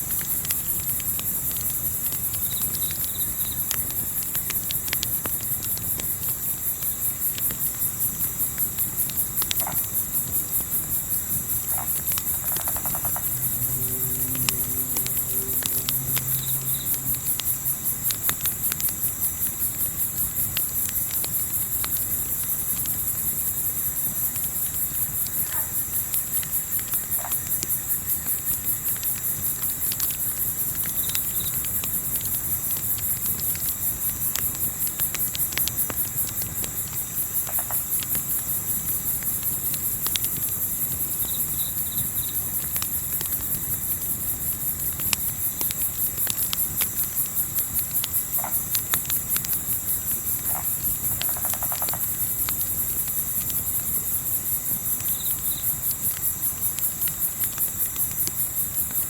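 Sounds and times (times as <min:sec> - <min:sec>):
campfire pops and crackles: 0:00.0 - 0:59.0
crickets chirping: 0:00.0 - 0:59.0
low steady rumble: 0:11.3 - 0:19.7.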